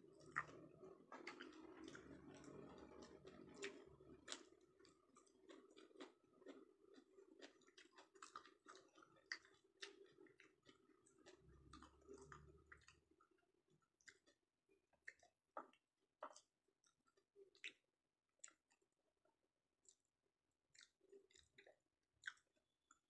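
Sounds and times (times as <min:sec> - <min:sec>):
low steady hum: 0:00.0 - 0:13.1
close-up chewing: 0:00.0 - 0:23.0
wet mouth clicks and smacks: 0:00.2 - 0:13.0, 0:15.0 - 0:17.8, 0:18.4 - 0:19.0, 0:19.8 - 0:20.1, 0:20.7 - 0:23.0.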